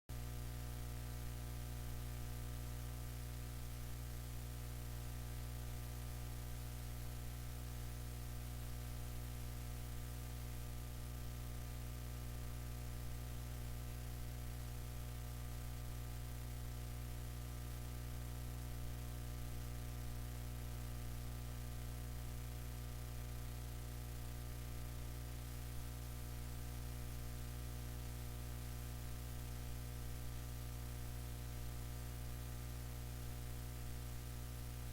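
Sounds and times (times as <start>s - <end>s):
electrical hum: 0.1s - 34.9s.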